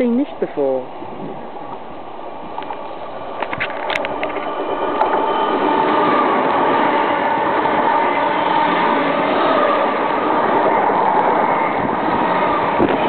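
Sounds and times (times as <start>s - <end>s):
electric train passing: 0.0s - 13.0s.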